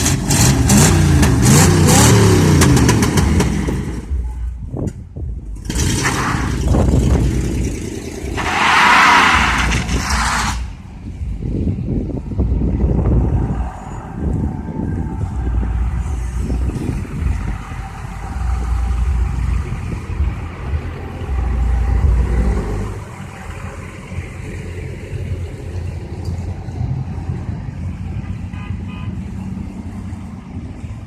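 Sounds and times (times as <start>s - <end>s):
trucks rumbling past: 0.0s - 31.0s
truck horn toots: 28.2s - 29.3s.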